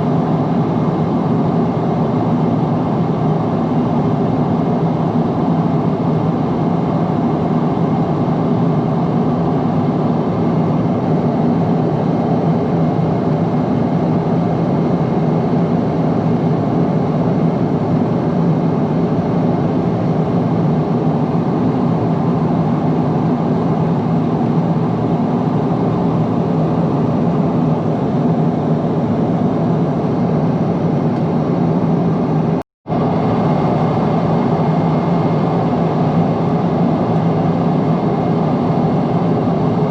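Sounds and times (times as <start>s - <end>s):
airplane cabin jet engine noise: 0.0s - 39.9s.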